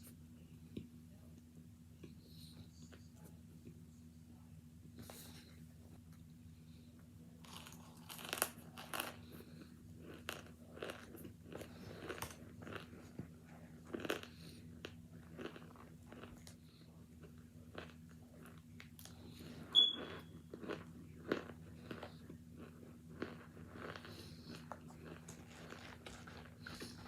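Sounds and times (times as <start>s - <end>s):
chewing brittle chunks: 7.4s - 27.0s.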